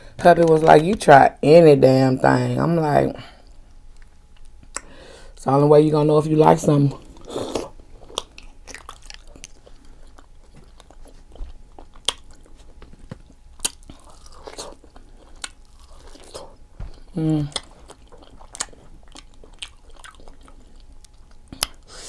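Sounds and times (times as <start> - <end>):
chewing and biting food: 7.2 - 21.9.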